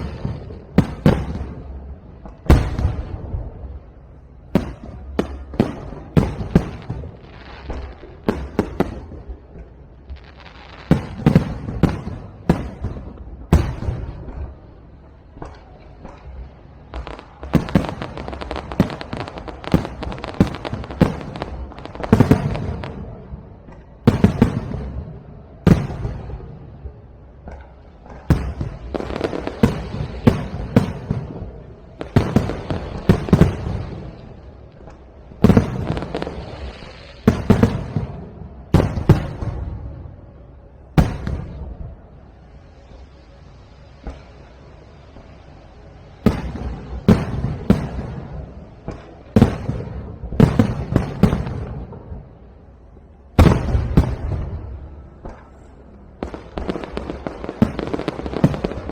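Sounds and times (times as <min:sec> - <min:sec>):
fireworks bangs: 0:00.0 - 0:58.9.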